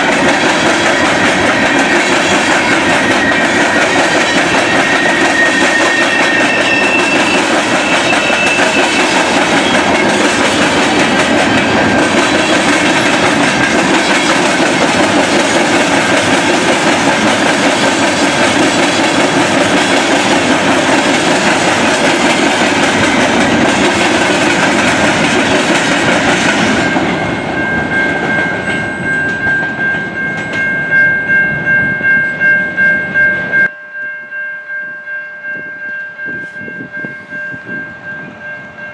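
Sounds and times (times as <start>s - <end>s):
train wheels clattering on rails: 0.0s - 32.0s
pulsing high ringing tone: 1.0s - 10.4s, 27.2s - 38.9s.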